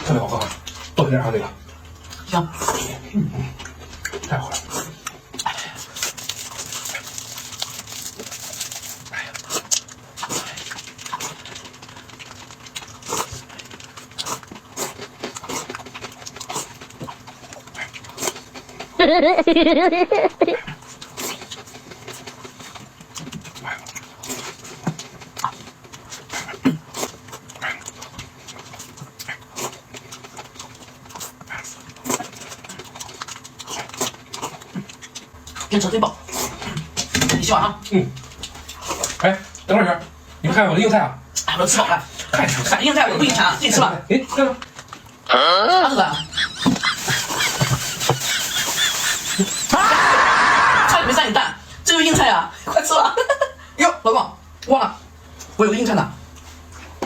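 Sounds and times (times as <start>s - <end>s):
chewing mouth sounds: 1.7s - 19.0s, 20.7s - 36.9s.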